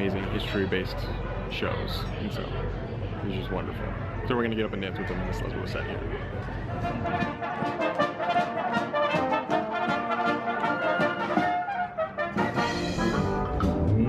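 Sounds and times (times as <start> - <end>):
brass band playing: 6.6 - 14.0.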